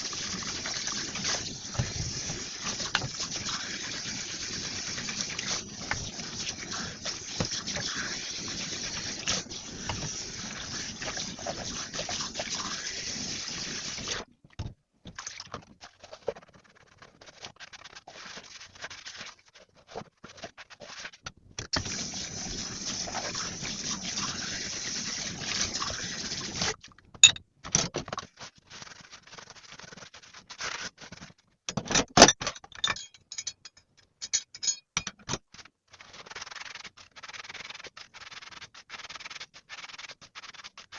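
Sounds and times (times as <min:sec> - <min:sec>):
water running from tap: 0:00.0 - 0:14.2, 0:21.8 - 0:26.8
knocks and clinks of items: 0:31.7 - 0:35.4.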